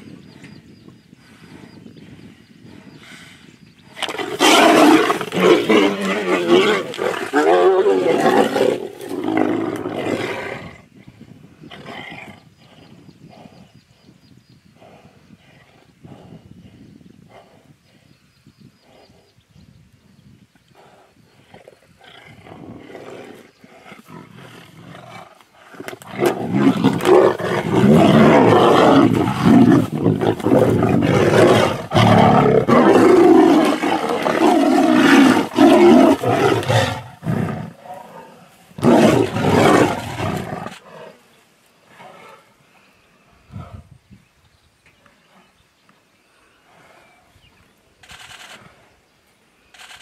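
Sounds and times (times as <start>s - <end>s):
tiger low growls: 1.4s - 13.8s, 20.7s - 44.0s, 46.4s - 49.0s
tigers snarling and roaring: 3.9s - 10.9s, 20.8s - 42.6s.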